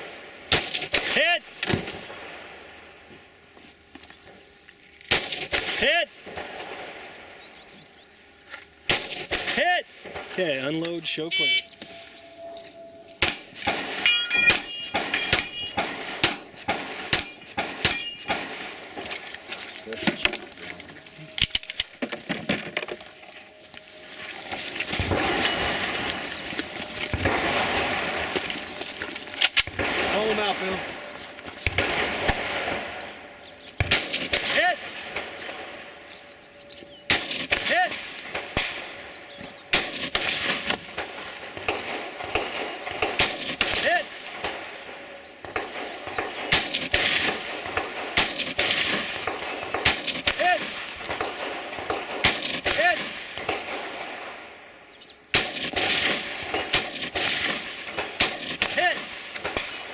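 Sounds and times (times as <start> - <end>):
loud sharp gunshots: 0.5 - 2.6, 5.1 - 7.2, 8.9 - 11.6, 13.2 - 19.1, 27.0 - 28.6, 29.5 - 33.2, 33.8 - 35.8, 37.1 - 39.0, 39.7 - 44.8, 45.4 - 54.5, 55.3 - 59.9
fainter gunshots: 8.9 - 11.6, 29.5 - 33.2
rustle of movement: 11.0 - 37.4
sharp clicks and clinks: 13.2 - 16.0.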